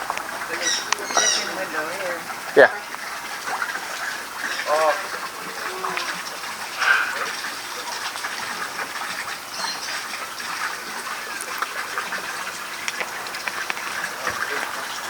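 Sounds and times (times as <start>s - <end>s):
rushing water: 0.0s - 15.0s
bird chirps and calls: 0.5s - 1.7s, 9.5s - 10.0s.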